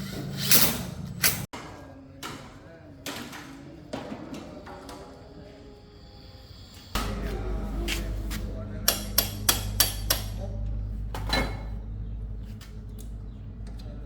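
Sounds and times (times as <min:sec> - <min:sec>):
steady low hum: 0:05.9 - 0:14.0.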